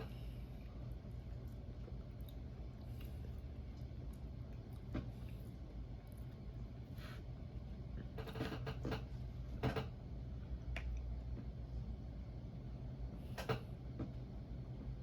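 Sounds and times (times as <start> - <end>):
low steady hum: 0.0 - 15.0
person chewing with mouth smacks: 0.6 - 6.9.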